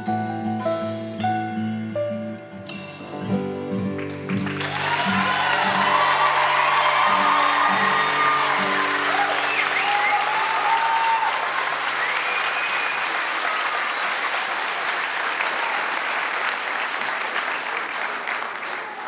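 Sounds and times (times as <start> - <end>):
held accompaniment chord: 0.0 - 9.8
audience applauding: 3.8 - 19.0
rising and falling cries: 4.6 - 11.6.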